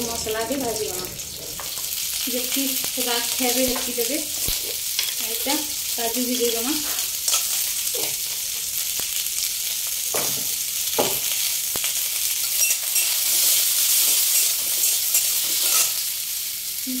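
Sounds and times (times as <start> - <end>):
spices sizzling in hot oil: 0.0 - 17.0
spoon scraping and knocking pan: 6.8 - 8.4, 10.1 - 11.4, 14.0 - 16.0.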